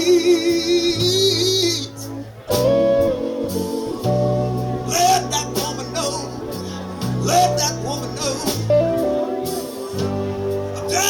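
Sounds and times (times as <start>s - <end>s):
live blues band playing: 0.0s - 11.0s.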